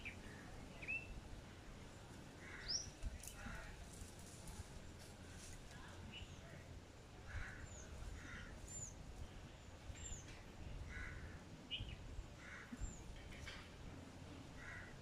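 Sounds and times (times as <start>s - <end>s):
lower bird chirps: 0.0s - 1.2s.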